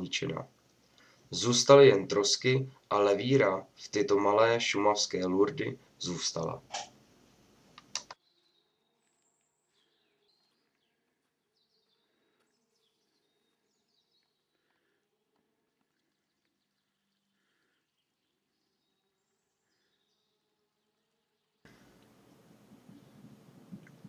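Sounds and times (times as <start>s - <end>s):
short clicks: 7.8s - 8.2s.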